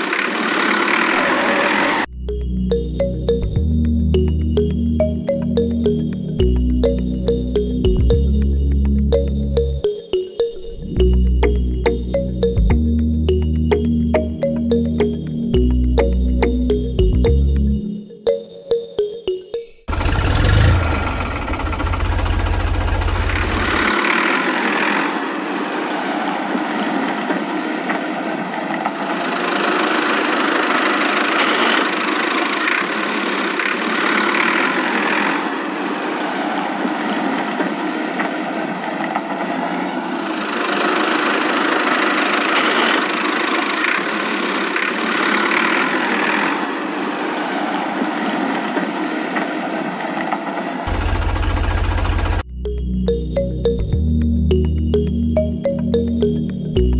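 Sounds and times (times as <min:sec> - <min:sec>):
small motor running: 0:00.0 - 0:02.1, 0:19.9 - 0:26.0, 0:28.9 - 0:36.3, 0:40.2 - 0:49.0, 0:50.9 - 0:52.4.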